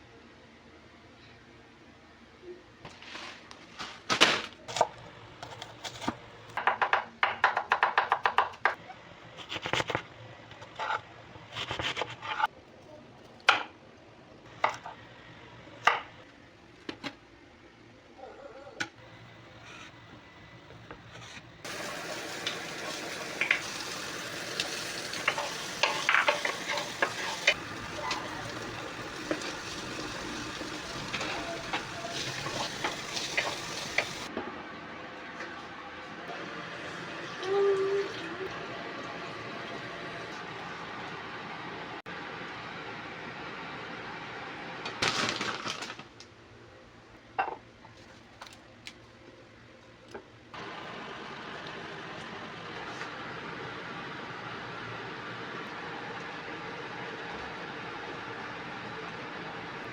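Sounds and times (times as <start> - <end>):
food sizzling in a pan: 21.7 - 34.3
kitchen utensils clicking: 25.1 - 28.6.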